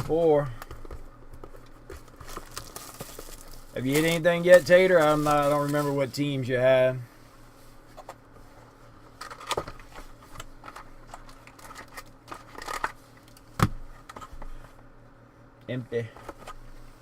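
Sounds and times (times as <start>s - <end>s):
cardboard rustling: 0.0s - 6.2s
crinkling wrapper: 1.6s - 6.2s.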